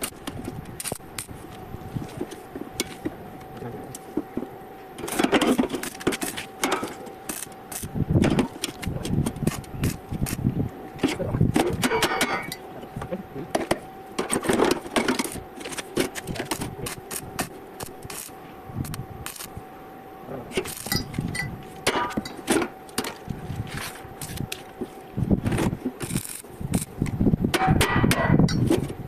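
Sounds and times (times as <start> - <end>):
steady hum: 0.0 - 29.0
iron pieces clinking and scraping: 11.8 - 12.7, 20.6 - 23.2.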